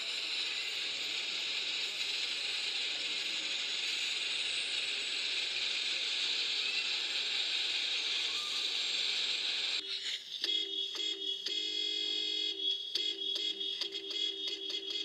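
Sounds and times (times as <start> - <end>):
steady hiss: 0.0 - 9.8
electronic beeping pattern: 9.8 - 15.0.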